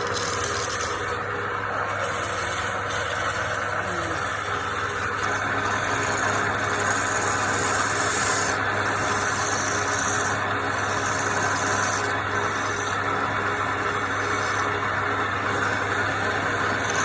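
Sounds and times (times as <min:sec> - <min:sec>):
lathe motor hum: 0:00.0 - 0:17.0
tool scraping spinning wood: 0:00.0 - 0:17.0.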